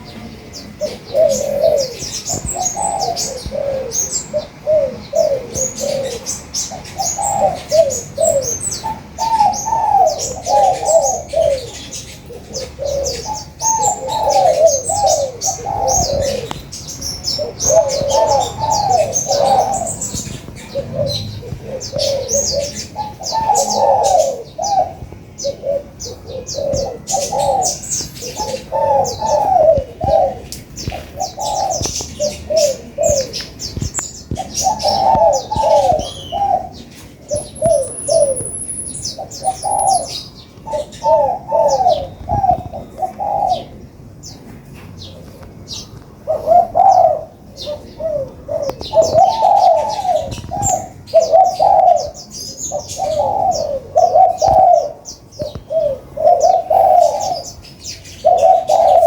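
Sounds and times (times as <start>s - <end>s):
doves cooing: 0.0s - 59.0s
high bird chirps: 30.8s - 43.7s.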